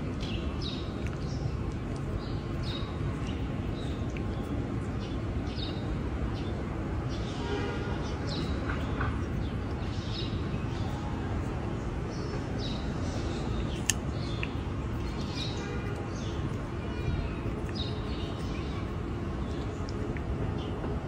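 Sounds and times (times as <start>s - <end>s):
small birds chirping: 0.0s - 21.0s
sharp click: 13.7s - 14.6s.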